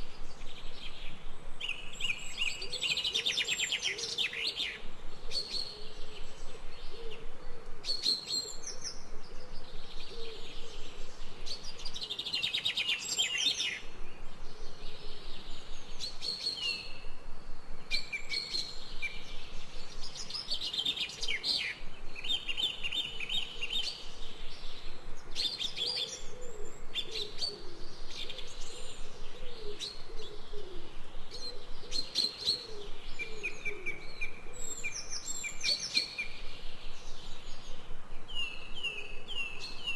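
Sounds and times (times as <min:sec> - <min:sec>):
birds chirping and trilling: 0:00.0 - 0:39.9
faint background hiss: 0:00.0 - 0:39.9
low wavering bird calls: 0:17.8 - 0:39.9.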